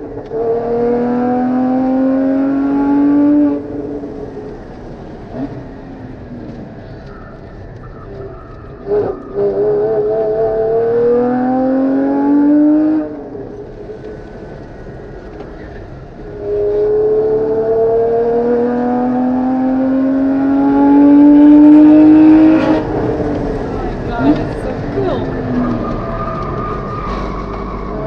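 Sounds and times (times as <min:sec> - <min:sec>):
car engine at full throttle: 0:00.0 - 0:28.0.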